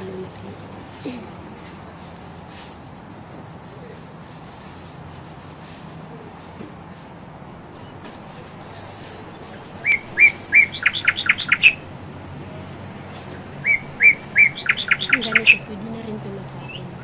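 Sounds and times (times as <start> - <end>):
bird singing whistled notes: 9.8 - 11.9, 13.6 - 15.7.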